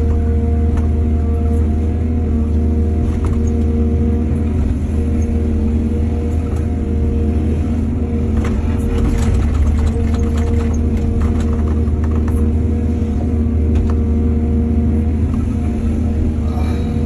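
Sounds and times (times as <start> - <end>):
excavator engine running: 0.0 - 17.0
clatter and scraping: 8.3 - 12.8.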